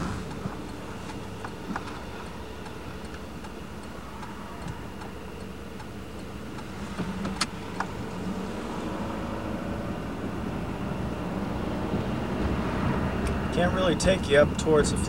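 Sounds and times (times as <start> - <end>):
car engine idling: 0.0 - 15.0
faint light ticking: 0.2 - 7.9
sharp clicks: 0.2 - 8.0.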